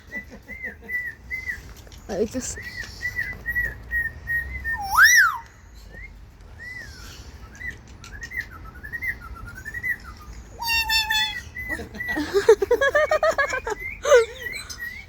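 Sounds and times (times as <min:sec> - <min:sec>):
bird whistling: 0:02.6 - 0:12.4.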